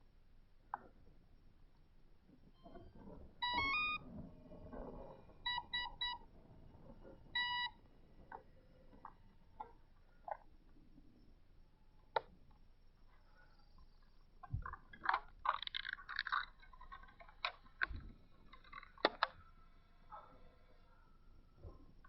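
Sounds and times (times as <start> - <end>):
electronic beeps: 2.6 - 6.3, 7.0 - 8.4.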